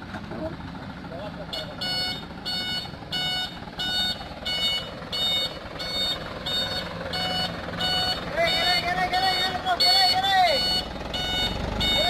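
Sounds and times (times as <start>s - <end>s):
truck engine running: 0.0s - 12.0s
truck reversing alarm beeping: 1.4s - 12.0s.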